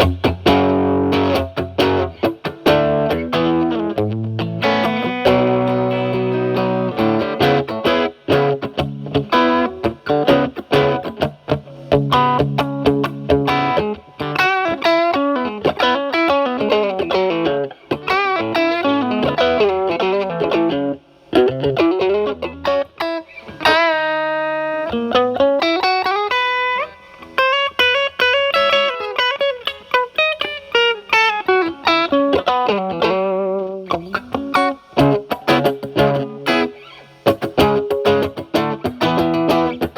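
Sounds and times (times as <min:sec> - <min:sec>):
overdriven electric guitar: 0:00.0 - 0:39.9.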